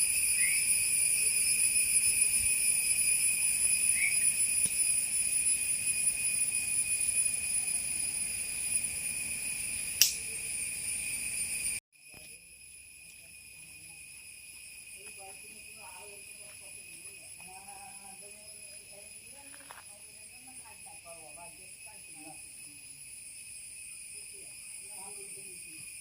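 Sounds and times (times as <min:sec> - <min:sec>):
high-pitched insect chorus: 0:00.0 - 0:26.0
sharp click: 0:10.0 - 0:10.2.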